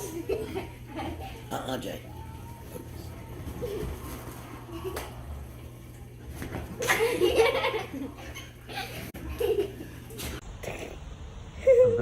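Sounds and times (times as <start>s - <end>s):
person laughing: 11.6s - 12.0s.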